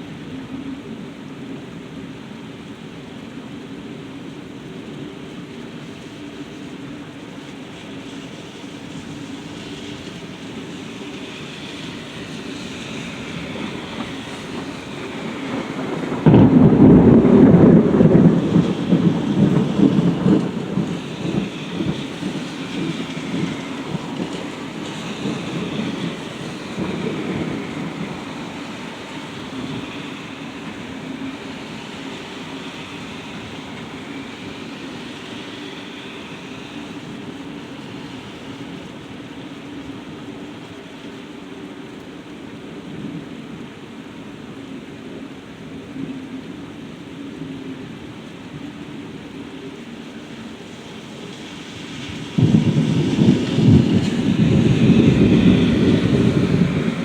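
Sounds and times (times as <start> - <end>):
steady rain: 0.0 - 57.0
thunder crack rumbling: 8.6 - 35.0, 51.8 - 57.0.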